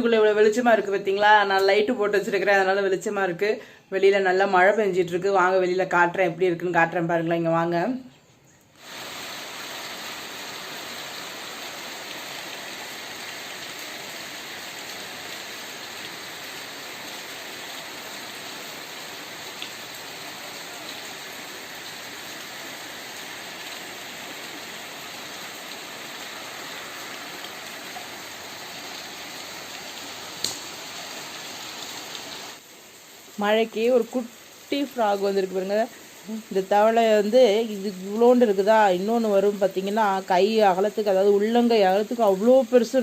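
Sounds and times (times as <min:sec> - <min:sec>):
heavy rain falling: 0:08.8 - 0:43.0.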